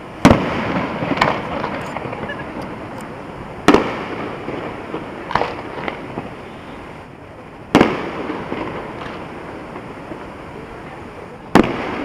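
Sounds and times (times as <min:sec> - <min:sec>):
firework bangs: 0:00.0 - 0:12.0
firework crackle: 0:00.0 - 0:12.0
small firework pops: 0:00.2 - 0:06.3, 0:07.7 - 0:09.9, 0:11.5 - 0:12.0.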